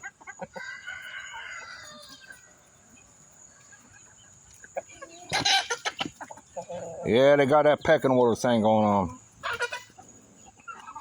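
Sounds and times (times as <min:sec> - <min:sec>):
chickens: 0:00.0 - 0:11.0
rooster crowing: 0:00.5 - 0:02.8.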